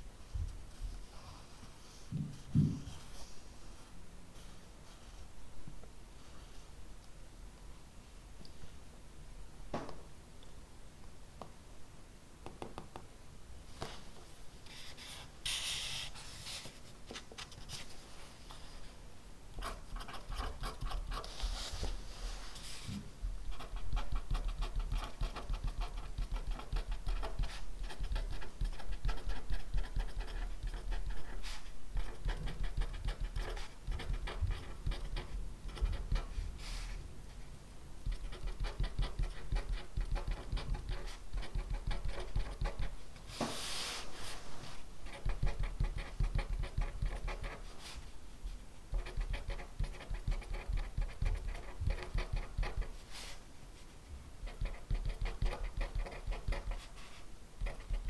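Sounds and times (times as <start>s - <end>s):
pen scratching on paper: 19.6s - 21.6s, 23.5s - 36.4s, 38.1s - 42.9s, 45.1s - 47.7s, 49.0s - 53.0s, 54.4s - 56.9s, 57.6s - 58.0s.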